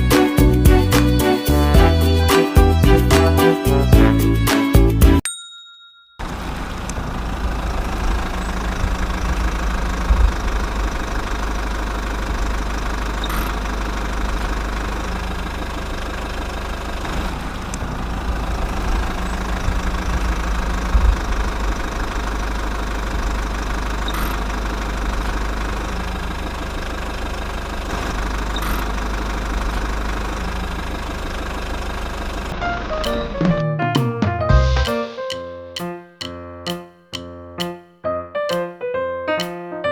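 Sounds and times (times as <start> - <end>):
small diesel engine running: 7.0 - 32.6.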